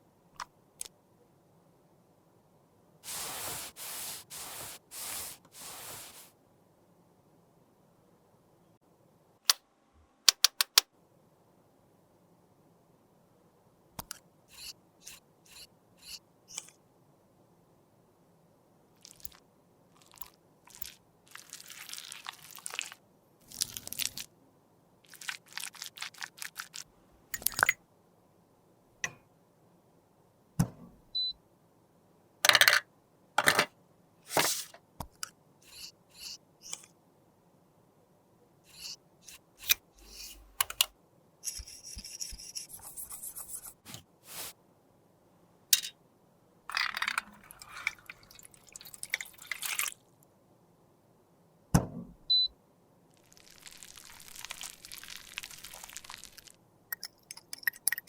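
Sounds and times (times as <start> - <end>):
scraping or rubbing: 3.0 - 6.3, 38.7 - 40.6, 41.4 - 44.6
tools tapping and clicking: 10.3 - 10.9, 38.8 - 42.9, 45.8 - 46.0, 56.9 - 58.0.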